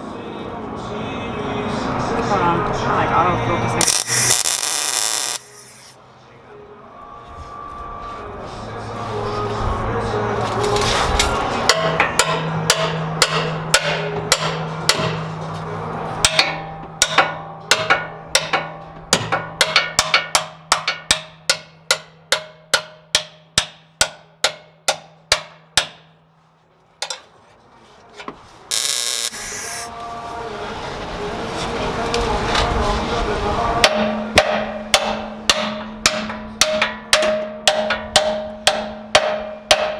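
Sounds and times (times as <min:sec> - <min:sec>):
hammer striking steel: 0:03.8 - 0:06.0, 0:11.7 - 0:15.3, 0:16.2 - 0:26.2, 0:28.7 - 0:29.9, 0:33.8 - 0:39.9
short hiss: 0:28.7 - 0:30.0.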